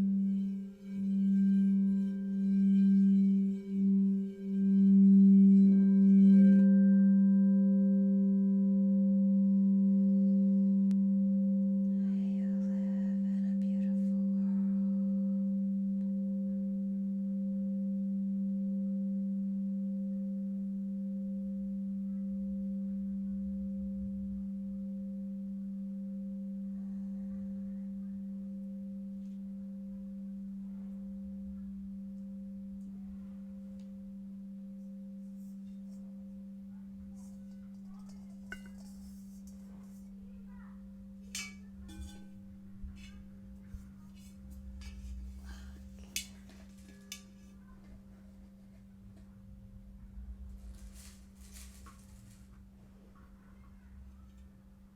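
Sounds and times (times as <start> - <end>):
singing bowl ringing: 0.0 - 47.8.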